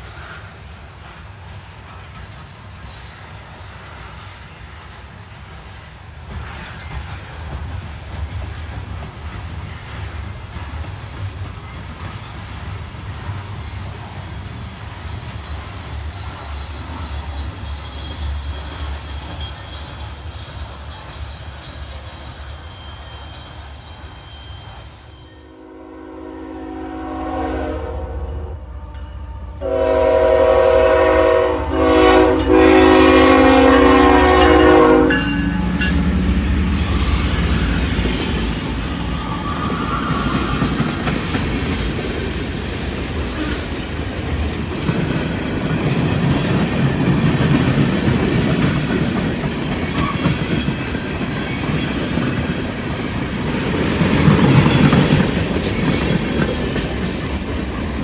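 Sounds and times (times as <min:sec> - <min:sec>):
locomotive air horn blasts: 0:25.4 - 0:28.9, 0:29.6 - 0:36.1
freight cars rumbling: 0:35.4 - 0:58.0.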